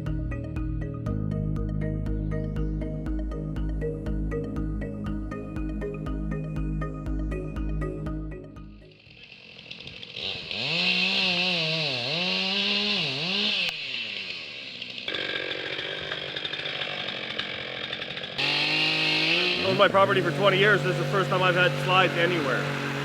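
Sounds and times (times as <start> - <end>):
chainsaw cutting wood: 8.9 - 23.0.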